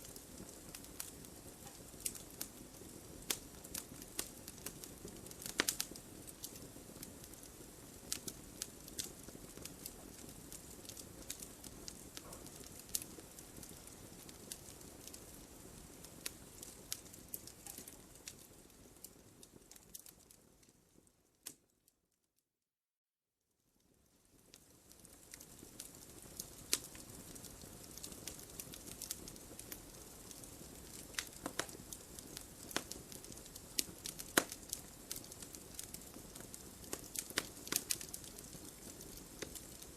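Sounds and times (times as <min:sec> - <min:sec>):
fire popping: 0:00.0 - 0:21.7, 0:24.4 - 0:39.9
wood fire crackling: 0:00.0 - 0:21.7, 0:23.8 - 0:39.9.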